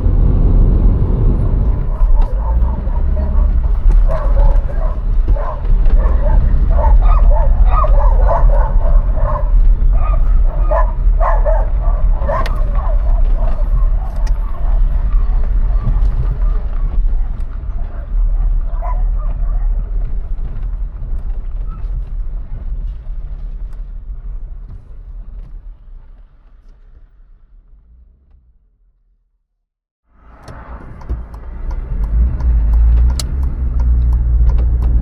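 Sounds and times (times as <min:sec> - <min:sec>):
steady low rumble: 0:00.0 - 0:28.4
dogs barking and yelping: 0:01.6 - 0:20.2.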